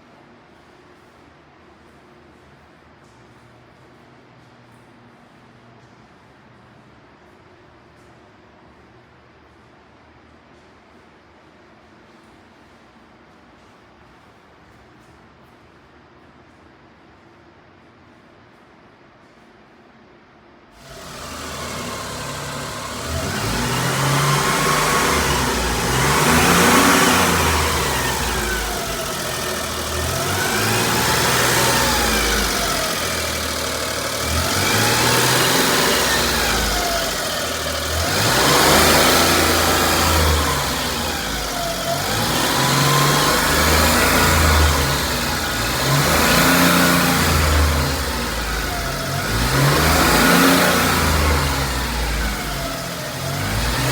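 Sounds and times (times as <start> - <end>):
truck engine revving: 20.8 - 53.9.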